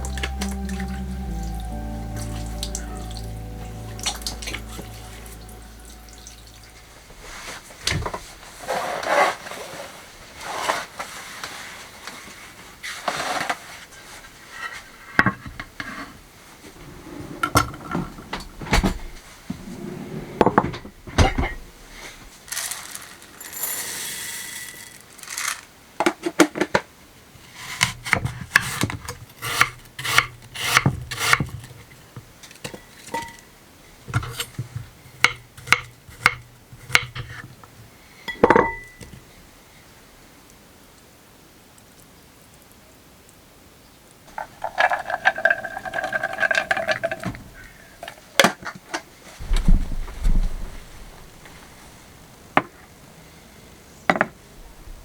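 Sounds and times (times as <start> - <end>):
kitchenware scraping: 16.9 - 25.7, 44.3 - 47.6
kitchenware clinking and knocking: 20.4 - 21.7, 38.3 - 39.2, 44.4 - 47.5.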